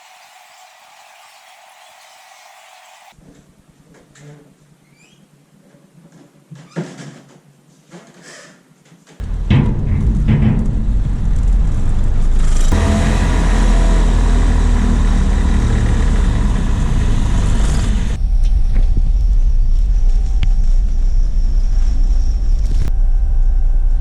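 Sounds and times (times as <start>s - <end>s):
low vehicle rumble: 9.2s - 24.0s.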